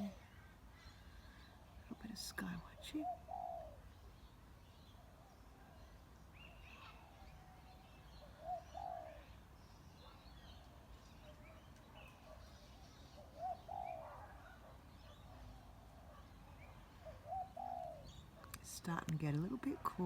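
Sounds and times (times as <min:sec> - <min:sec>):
small birds chirping: 0:00.0 - 0:20.0
dove cooing: 0:01.9 - 0:03.8, 0:08.2 - 0:09.4, 0:11.2 - 0:18.5.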